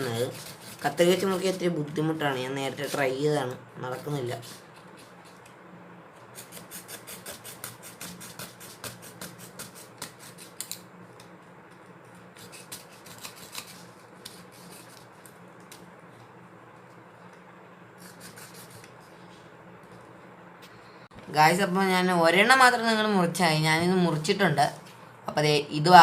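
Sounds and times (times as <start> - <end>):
knife scraping wooden stick: 0.0 - 1.5, 6.3 - 10.8, 12.3 - 15.1, 18.0 - 19.1.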